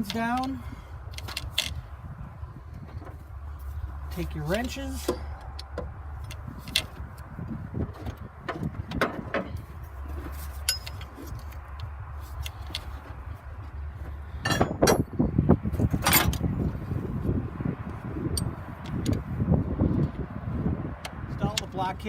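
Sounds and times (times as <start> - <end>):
handling rumble: 0.0 - 22.0
wrenches clinking on metal fittings: 10.5 - 11.4.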